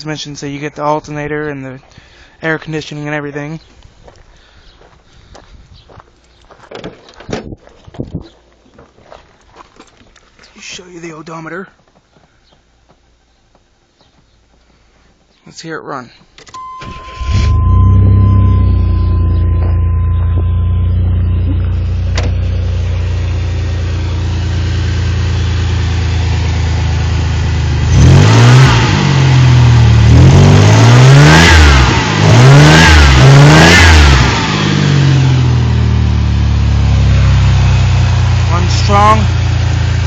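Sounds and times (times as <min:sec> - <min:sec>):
car engine idling and revving: 0:16.6 - 0:40.0.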